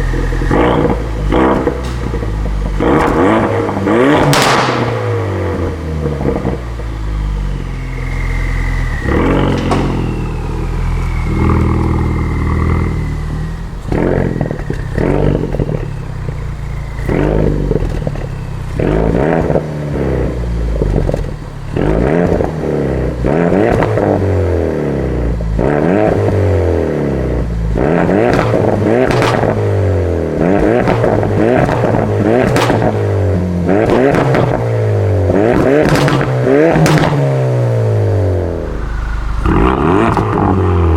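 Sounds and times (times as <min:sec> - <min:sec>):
car engine revving: 0:00.0 - 0:40.9
exhaust pops and cracks: 0:00.1 - 0:06.6, 0:09.0 - 0:12.8, 0:13.8 - 0:19.6, 0:20.7 - 0:22.6, 0:23.6 - 0:24.2, 0:28.0 - 0:29.6, 0:30.5 - 0:33.0, 0:33.8 - 0:34.7, 0:35.3 - 0:37.2.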